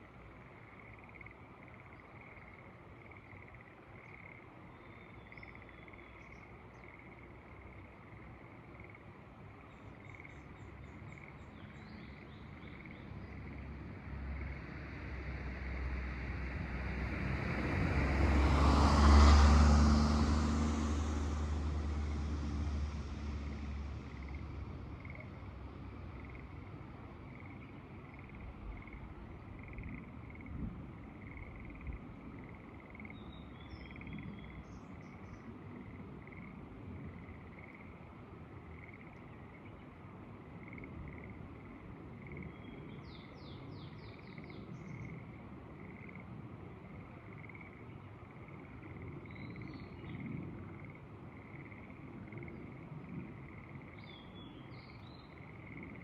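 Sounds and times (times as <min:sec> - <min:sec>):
frogs calling in chorus: 0:00.6 - 0:07.9, 0:24.1 - 0:25.4, 0:38.7 - 0:39.8, 0:40.5 - 0:42.6, 0:44.2 - 0:46.3, 0:47.0 - 0:49.8, 0:50.7 - 0:56.0
motor vehicle passing: 0:14.0 - 0:27.2.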